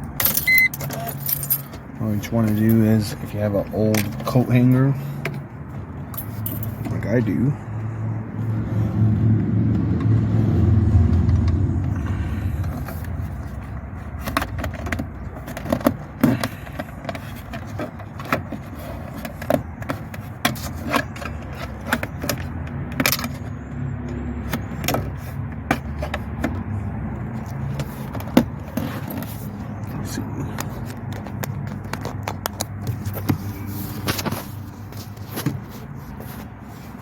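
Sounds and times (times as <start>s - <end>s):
wire scraping dashboard plastic: 10.9s - 37.0s.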